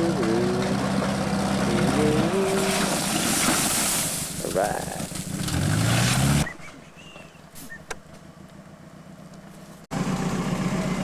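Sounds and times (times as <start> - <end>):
car engine idling: 0.0 - 2.7, 6.7 - 11.0
car engine revving hard: 5.2 - 6.5.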